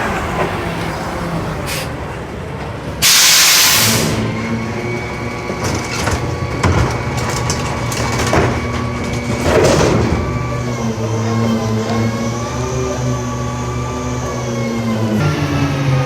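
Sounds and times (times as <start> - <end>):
garbage truck engine hum: 0.0 - 16.0
debris cracking and crunching: 5.4 - 10.4.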